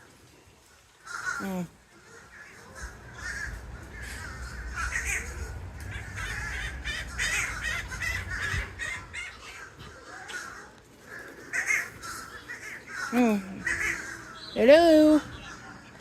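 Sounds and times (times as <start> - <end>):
crows cawing: 0.8 - 15.9
low rumble: 2.7 - 9.8.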